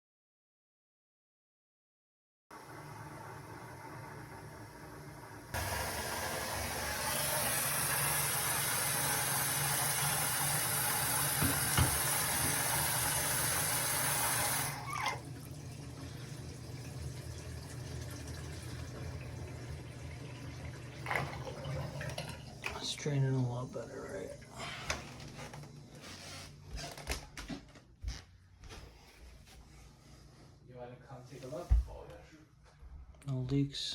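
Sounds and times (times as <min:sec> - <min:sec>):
tap water running into sink: 0:05.2 - 0:23.0.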